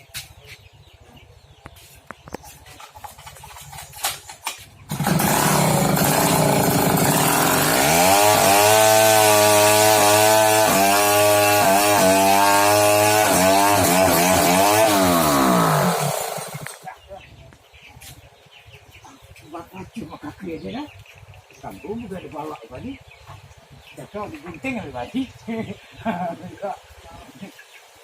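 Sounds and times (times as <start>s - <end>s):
saw cutting log with screech: 4.9s - 16.8s.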